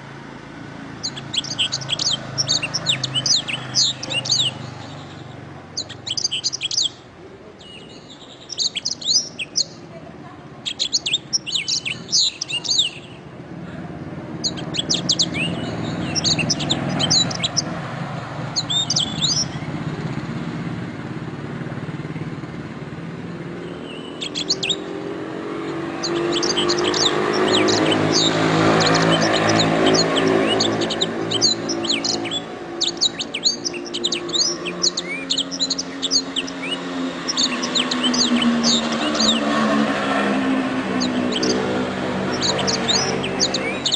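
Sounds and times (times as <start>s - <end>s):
canary singing: 0.6s - 13.4s, 14.1s - 20.1s, 23.3s - 43.9s.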